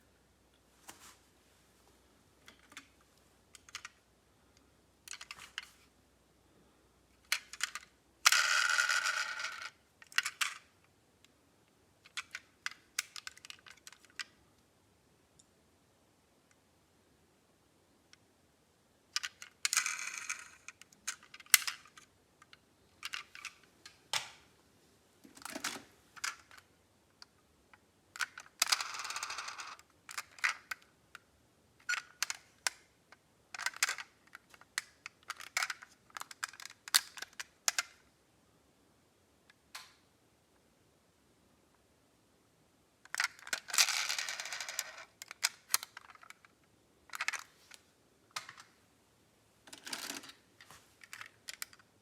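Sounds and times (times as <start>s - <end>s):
metal model cars clicking: 31.8s - 32.9s, 33.6s - 38.0s, 47.1s - 47.5s, 51.0s - 51.9s.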